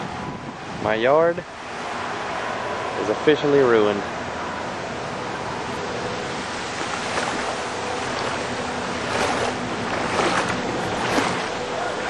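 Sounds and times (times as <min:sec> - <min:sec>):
storm wind on microphone: 0:00.0 - 0:01.0.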